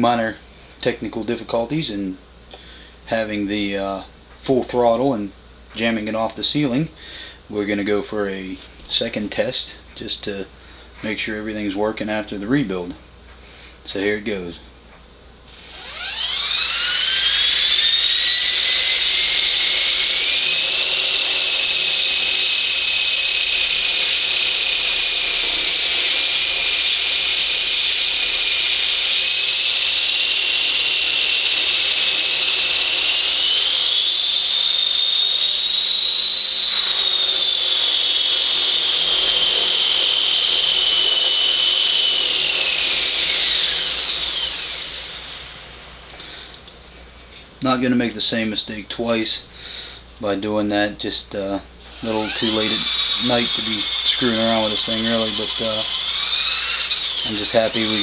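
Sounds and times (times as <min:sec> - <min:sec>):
rc helicopter motor whine: 0:15.5 - 0:46.6, 0:51.8 - 0:58.0.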